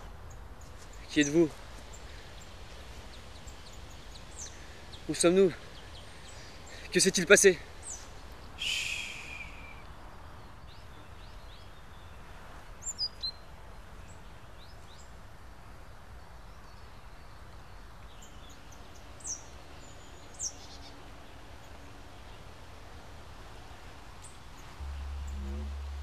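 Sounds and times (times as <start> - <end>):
wild birds chirping: 0.0 - 26.0
low outdoor rumble: 18.5 - 26.0.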